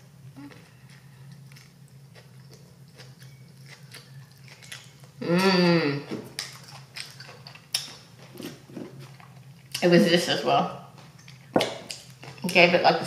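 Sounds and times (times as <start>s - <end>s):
hum-like vocal sound: 0.0s - 0.7s, 5.2s - 6.2s
person chewing a burger: 0.3s - 9.8s.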